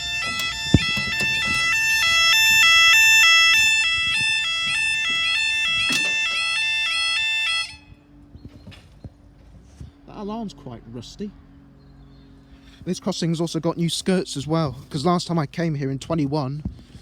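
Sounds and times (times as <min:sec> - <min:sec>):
level crossing alarm two-tone: 0:00.0 - 0:07.8.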